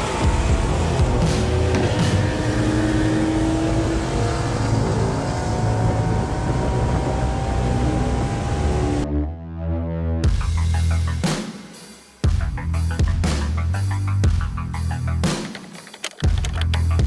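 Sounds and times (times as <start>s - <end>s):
car engine running: 0.0s - 9.0s, 14.6s - 17.0s.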